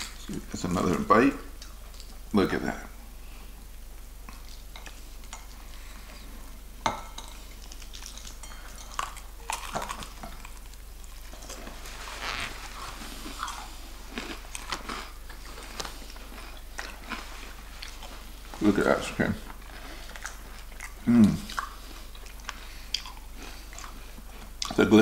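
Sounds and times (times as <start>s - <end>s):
person chewing crispy chicken: 7.4s - 18.7s, 19.4s - 24.8s.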